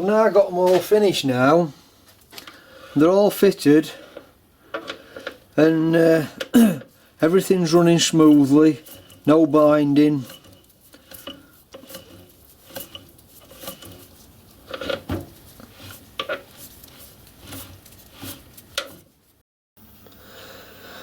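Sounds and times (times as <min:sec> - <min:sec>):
faint steady hum: 0:19.8 - 0:21.0.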